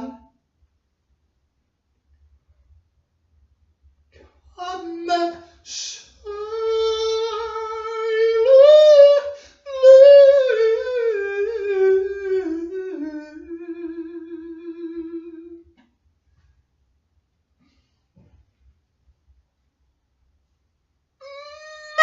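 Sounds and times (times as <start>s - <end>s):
person singing wordless notes: 0.0s - 0.3s, 4.6s - 15.6s, 21.2s - 22.0s.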